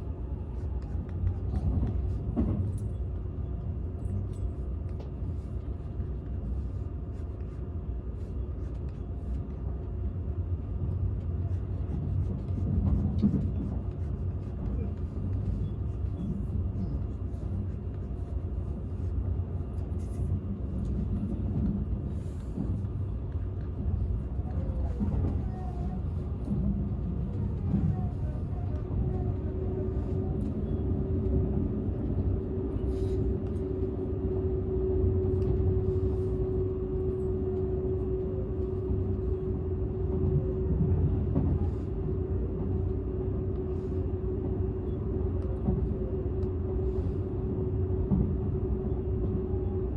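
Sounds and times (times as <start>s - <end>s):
train running rumble: 0.0s - 49.9s
steady hum: 26.0s - 49.9s.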